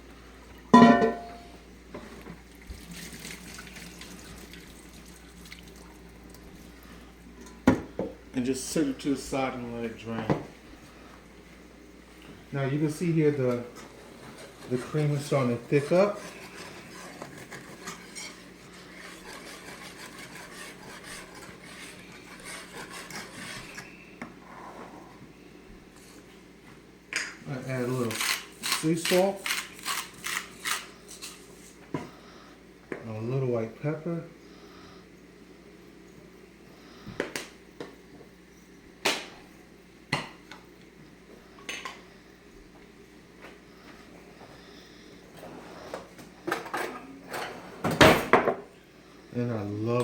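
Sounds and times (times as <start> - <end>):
utensil clinking against pot: 0.8 - 1.5
utensil scraping a pan: 0.8 - 1.5, 13.9 - 25.1.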